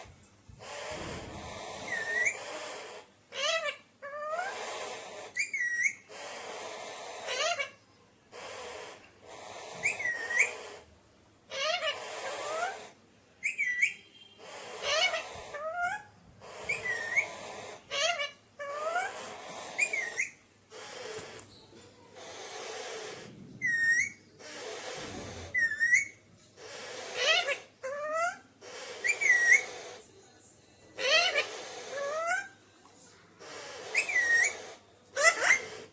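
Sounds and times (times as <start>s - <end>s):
parakeet raspy screeches: 0.0s - 10.9s, 11.5s - 30.1s, 31.0s - 32.6s, 33.4s - 35.9s
parakeet whistled notes: 0.7s - 2.5s, 9.8s - 10.7s, 13.4s - 19.1s, 22.4s - 30.0s, 33.5s - 35.8s
breathy hissing: 19.1s - 21.4s, 22.2s - 23.4s.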